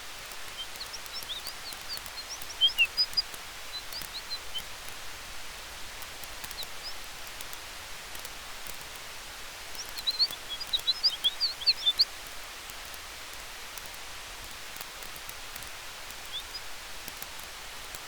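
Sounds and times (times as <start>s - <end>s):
campfire crackling: 0.0s - 18.0s
wind in trees: 0.0s - 18.0s
high bird chirps: 0.5s - 4.7s, 9.8s - 12.1s.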